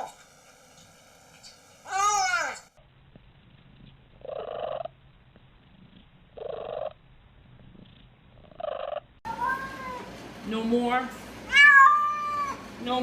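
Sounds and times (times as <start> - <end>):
cat purring: 3.0 - 9.2
cat short calls: 11.5 - 12.6.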